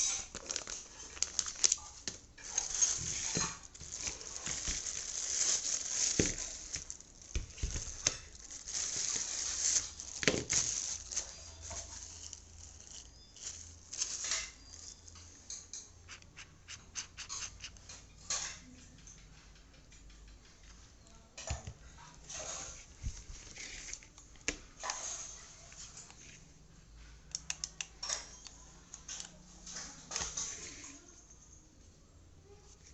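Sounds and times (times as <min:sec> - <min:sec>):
packaging rustling: 0:00.0 - 0:15.2
clicks and taps: 0:18.6 - 0:21.8.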